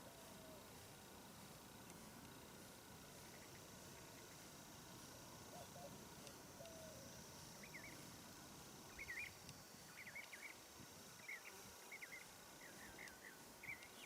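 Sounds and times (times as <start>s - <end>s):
small birds chirping: 3.0s - 4.7s, 6.6s - 8.2s, 8.8s - 14.0s.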